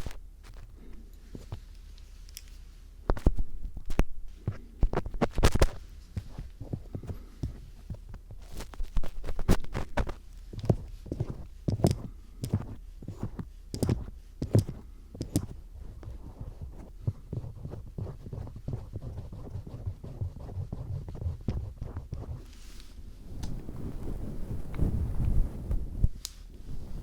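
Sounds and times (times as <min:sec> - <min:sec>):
screwdriver scraping microphone: 0:03.1 - 0:22.5.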